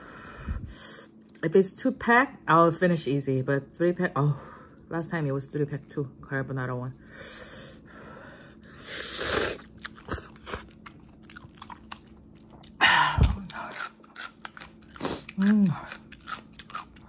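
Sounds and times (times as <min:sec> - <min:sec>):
wet chewing clicks: 0:09.6 - 0:17.0.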